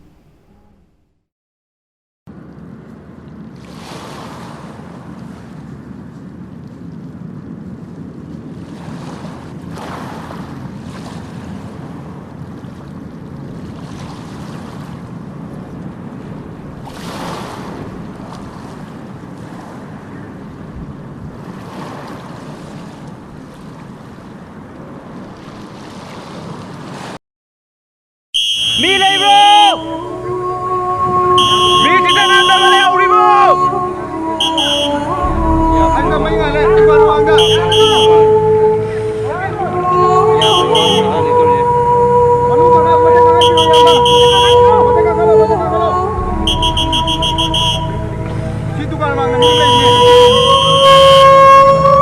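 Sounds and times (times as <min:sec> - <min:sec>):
outdoor rushing noise: 0:46.1 - 0:51.9.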